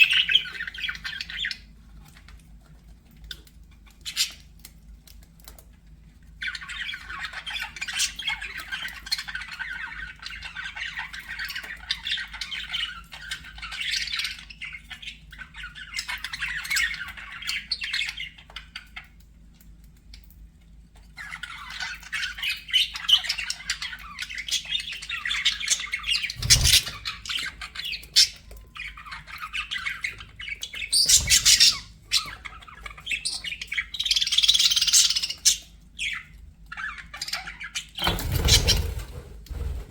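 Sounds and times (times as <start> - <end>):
budgerigars chattering: 21.2 - 39.0.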